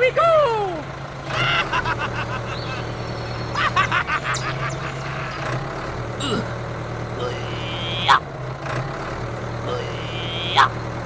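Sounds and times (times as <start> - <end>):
steady low motor hum: 0.0 - 11.0
rapid honking calls: 1.3 - 8.6, 9.6 - 10.9.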